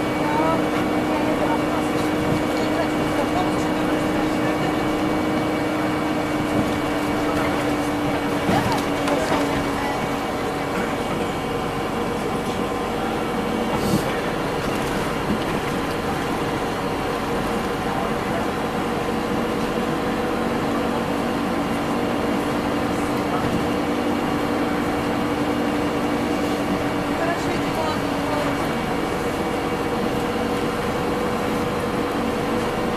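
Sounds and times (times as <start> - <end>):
bus engine drone: 0.0 - 32.9
road noise: 0.0 - 32.9.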